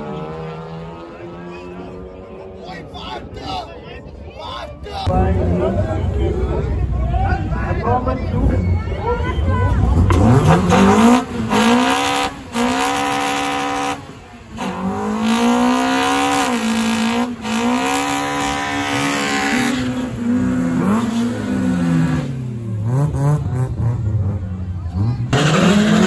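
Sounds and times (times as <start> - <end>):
car engine revving: 9.7 - 26.0.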